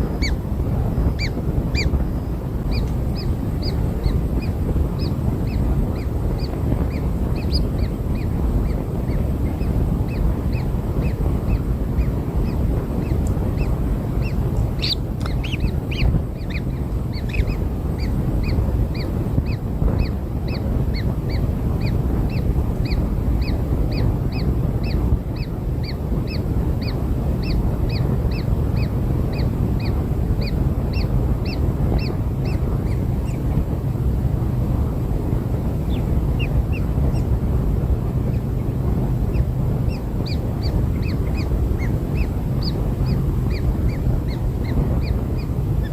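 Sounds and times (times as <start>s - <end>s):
nestlings begging calls: 0.0s - 33.6s, 35.6s - 37.4s, 38.2s - 45.9s.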